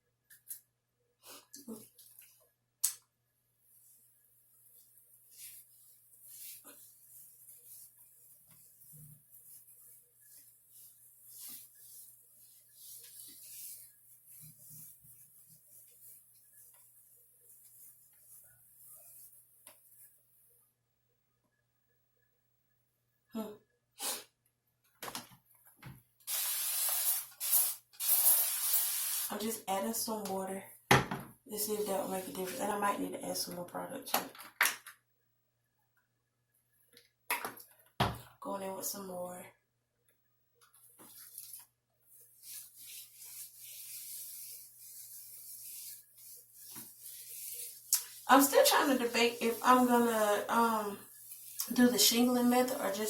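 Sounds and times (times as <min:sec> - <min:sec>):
hands rubbing gel into hair: 0:03.7 - 0:20.2, 0:40.9 - 0:53.0
spray bottle hissing: 0:26.3 - 0:29.3.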